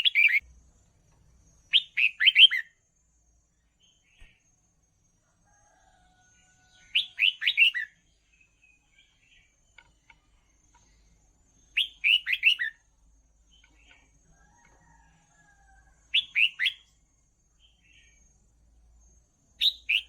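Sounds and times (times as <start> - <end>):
bird whistled song: 0.0 - 0.4, 1.7 - 2.8, 6.8 - 8.0, 11.7 - 12.8, 16.1 - 16.9, 19.6 - 20.0
faint bird chirps: 0.0 - 20.0.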